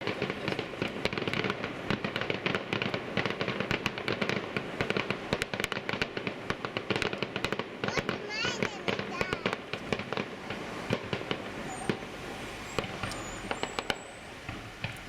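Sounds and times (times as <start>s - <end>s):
fireworks crackling bangs: 0.0s - 15.0s.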